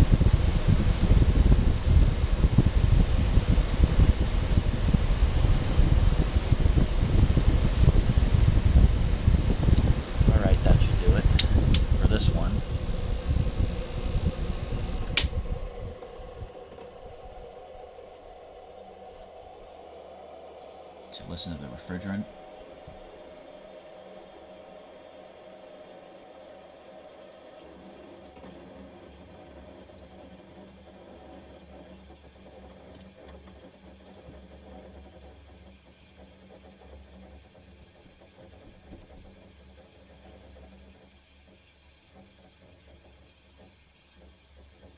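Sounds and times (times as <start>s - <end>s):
low steady hum: 0.0s - 28.4s
air conditioner running: 0.0s - 29.7s
refrigerant flowing: 0.2s - 25.8s
air conditioner switch click: 9.7s - 17.4s.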